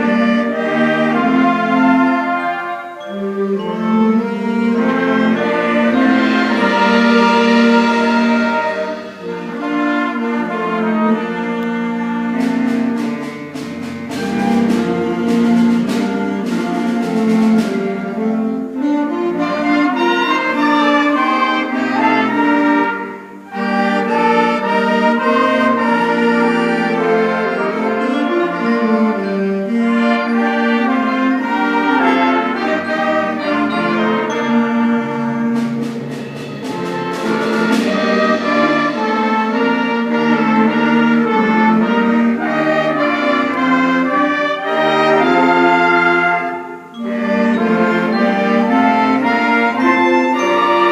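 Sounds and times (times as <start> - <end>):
concert band playing: 0.0 - 50.9
percussion hits: 3.2 - 18.9, 29.7 - 50.9.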